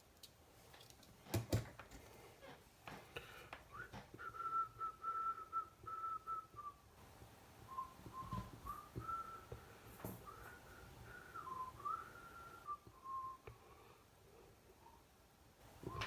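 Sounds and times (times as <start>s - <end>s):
person whistling a tune: 3.7s - 6.9s, 7.7s - 13.5s.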